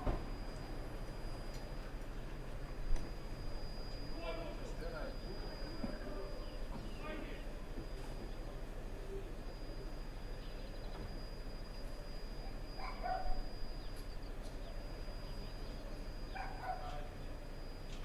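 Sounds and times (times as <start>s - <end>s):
low background hum: 0.0s - 18.0s
dog barking: 12.8s - 13.4s, 16.3s - 17.0s.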